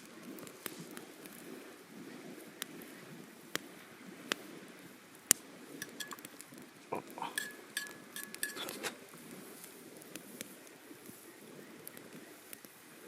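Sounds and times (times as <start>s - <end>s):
campfire crackling and popping: 0.0s - 13.0s
metal utensils clinking on cookware: 5.8s - 6.2s, 7.2s - 8.9s.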